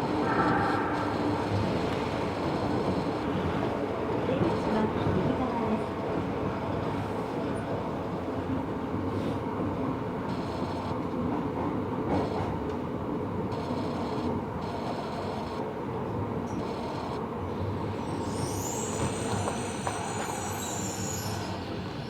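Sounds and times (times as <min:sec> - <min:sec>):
train wheel and rail rumble: 0:00.0 - 0:22.0
high-pitched wheel squeals: 0:17.9 - 0:22.0.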